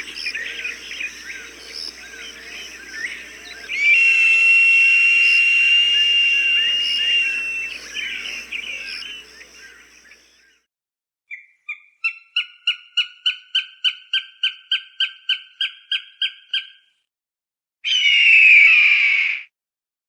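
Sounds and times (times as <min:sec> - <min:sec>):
falcon calling: 0:00.0 - 0:10.3
falcon harsh scream: 0:03.6 - 0:09.0, 0:17.9 - 0:19.4.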